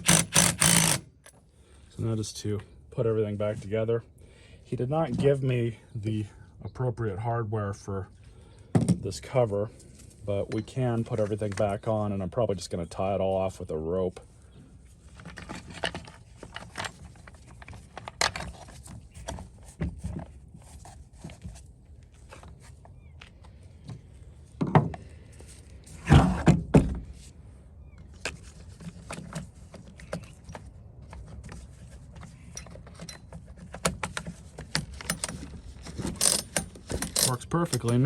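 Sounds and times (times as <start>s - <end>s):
parts clicking and rattling: 0.0s - 1.4s, 32.2s - 38.0s
rattling clatter: 34.6s - 38.0s.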